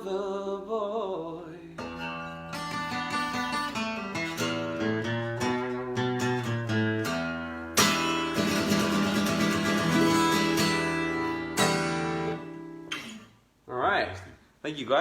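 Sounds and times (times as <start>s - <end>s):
guitar playing: 1.8s - 13.4s.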